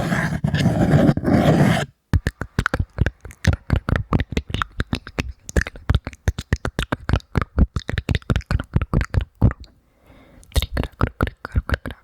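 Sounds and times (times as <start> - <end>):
wet lip and tongue clicks: 2.2 - 9.8.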